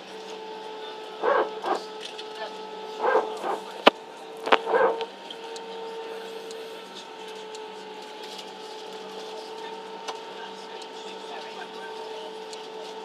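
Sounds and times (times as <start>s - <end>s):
airliner cabin hum: 2.9s - 5.2s.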